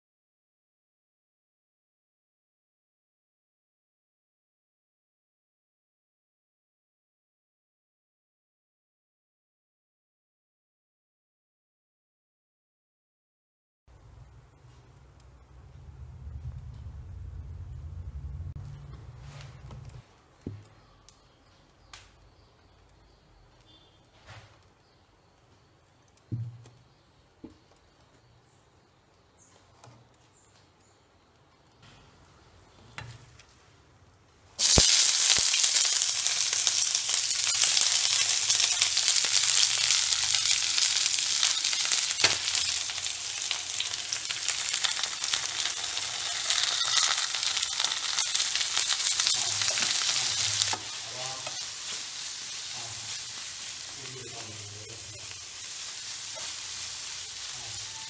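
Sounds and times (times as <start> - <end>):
onions frying in hot oil: 34.6 - 58.0.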